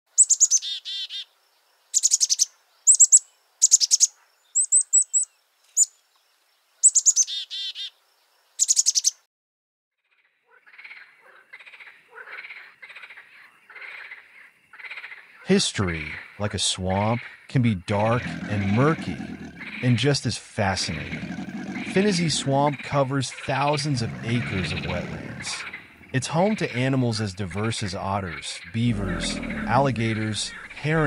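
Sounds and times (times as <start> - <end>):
songbird singing: 0.1 - 9.2, 15.4 - 31.0
frogs croaking: 10.1 - 31.0.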